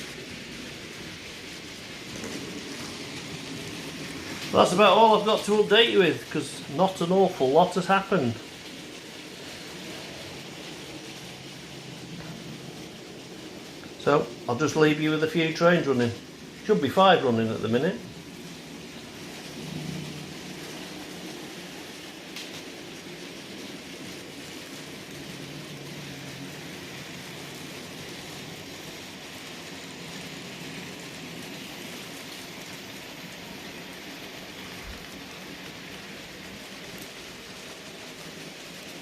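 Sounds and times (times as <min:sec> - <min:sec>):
model trains hissing on track: 0:00.0 - 0:39.0.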